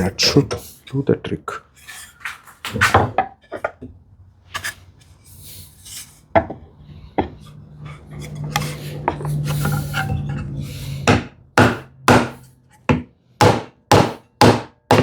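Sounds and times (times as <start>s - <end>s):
wood scraping and rubbing: 4.5s - 11.1s
wood knocking on wood: 11.1s - 15.0s.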